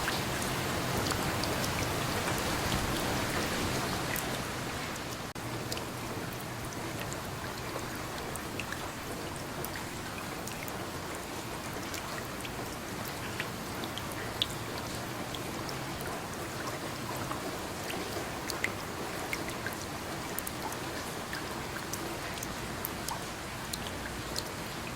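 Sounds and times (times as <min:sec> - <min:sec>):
rain hissing: 0:00.0 - 0:05.6
raindrops ticking: 0:00.0 - 0:24.9.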